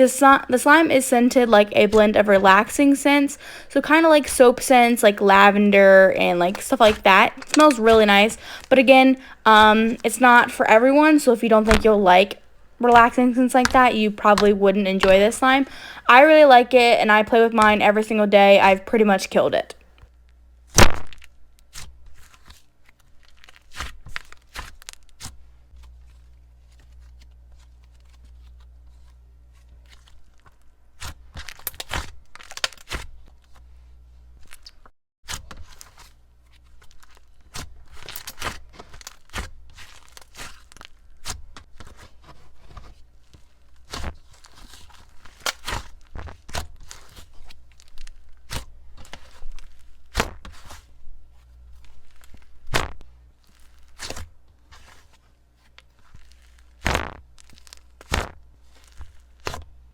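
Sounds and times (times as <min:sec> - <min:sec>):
low steady hum: 0:00.0 - 0:34.6
slime crackling and popping: 0:20.7 - 0:25.4, 0:29.8 - 0:33.6, 0:51.8 - 0:55.0, 0:55.9 - 0:59.7.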